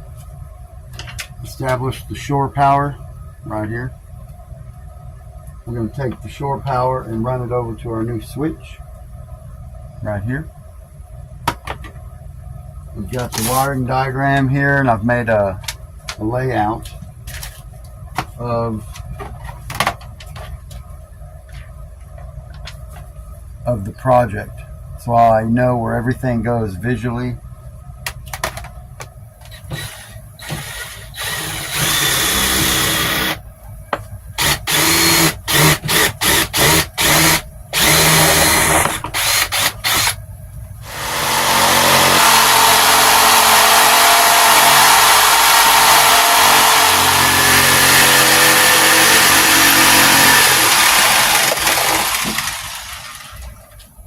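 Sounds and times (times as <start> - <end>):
power drill running: 29.5 - 33.4, 34.4 - 40.2, 40.8 - 53.4.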